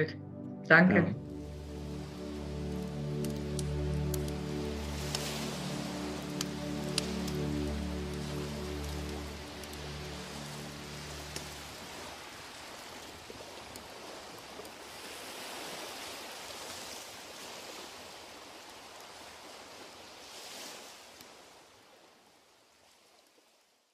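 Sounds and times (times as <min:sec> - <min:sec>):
outro music: 0:00.0 - 0:11.9.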